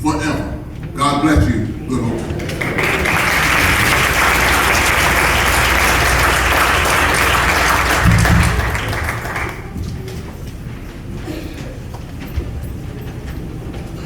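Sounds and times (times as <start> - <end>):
congregation applauding: 1.9 - 9.8.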